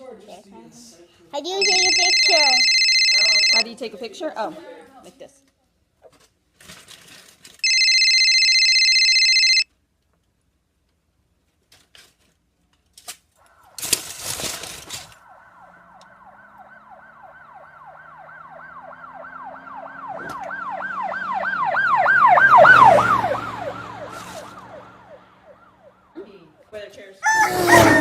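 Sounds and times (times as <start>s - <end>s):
siren yelping: 1.6s - 3.6s, 7.6s - 9.6s, 13.5s - 26.1s, 27.2s - 28.0s
vehicle engine: 13.4s - 26.6s, 27.3s - 28.0s.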